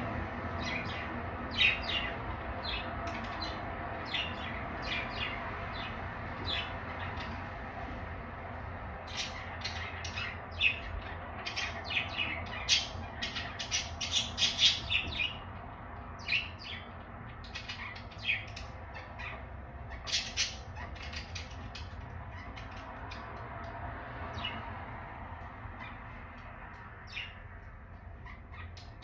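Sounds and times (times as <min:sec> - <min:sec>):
budgerigars chirping and squawking: 0:00.6 - 0:07.6, 0:09.0 - 0:24.6, 0:25.7 - 0:29.0.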